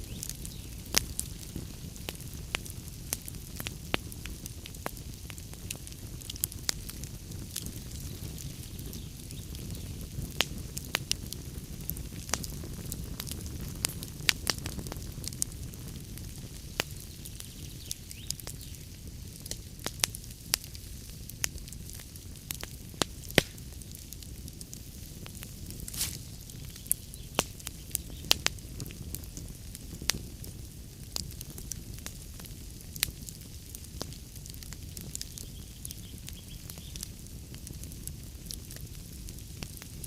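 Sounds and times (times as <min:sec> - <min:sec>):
wood fire crackling: 0:00.0 - 0:40.0
logs popping and snapping: 0:22.6 - 0:23.7, 0:25.8 - 0:28.5.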